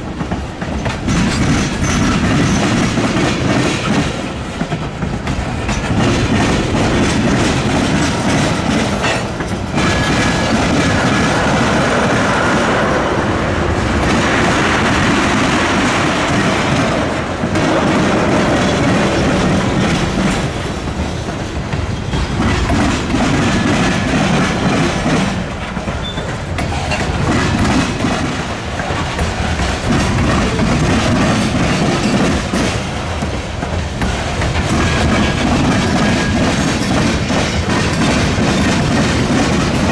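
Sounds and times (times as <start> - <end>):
train wheels clattering: 0.0 - 39.9.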